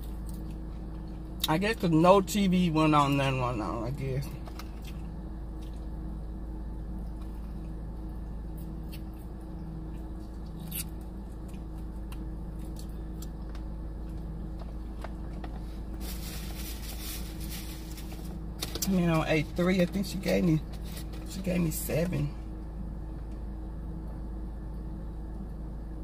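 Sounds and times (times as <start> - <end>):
steady low hum: 0.0 - 26.0
chewing and biting food: 4.5 - 6.0.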